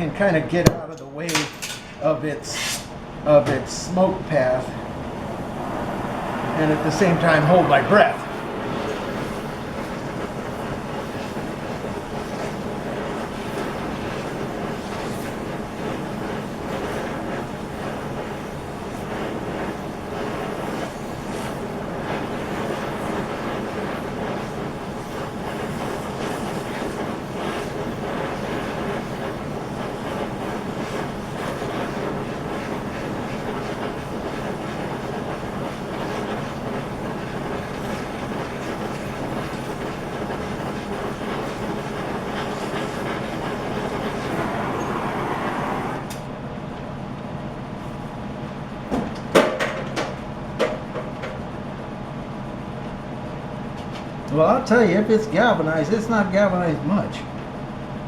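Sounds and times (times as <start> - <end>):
gas torch flame: 0.0 - 46.4.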